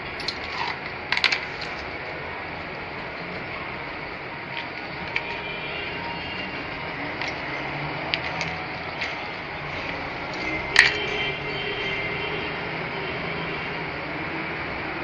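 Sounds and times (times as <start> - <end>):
small parts and tools clicking: 0.0 - 2.0, 4.5 - 11.3.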